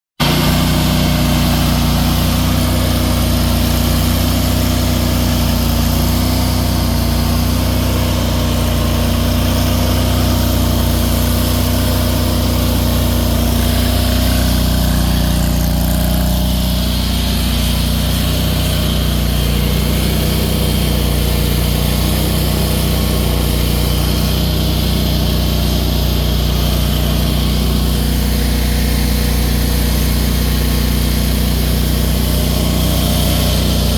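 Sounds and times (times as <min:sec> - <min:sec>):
excavator engine running: 0:00.2 - 0:33.9.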